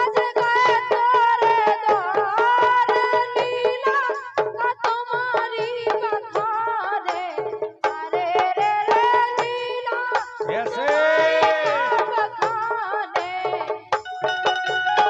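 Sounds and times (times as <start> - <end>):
hand drum beats: 0.0 - 15.0
melodic instrument playing tune: 14.0 - 15.0.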